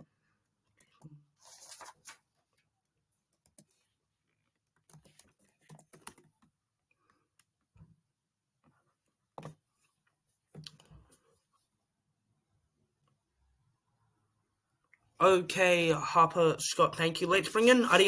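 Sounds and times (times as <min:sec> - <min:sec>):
faint clicks and taps: 0:03.3 - 0:11.3.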